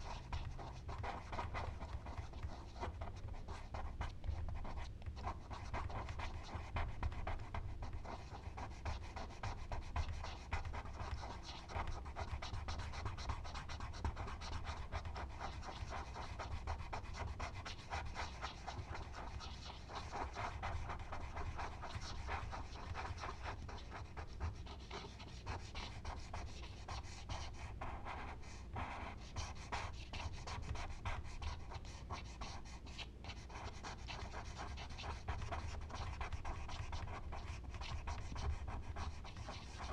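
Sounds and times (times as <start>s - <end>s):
charcoal scratching on paper: 0.0s - 39.9s.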